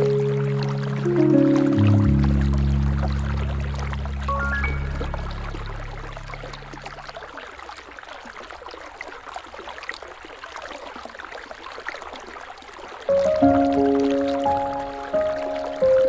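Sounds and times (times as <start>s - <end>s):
music with held notes: 0.0s - 7.1s, 13.1s - 16.0s
river water flowing: 0.0s - 16.0s.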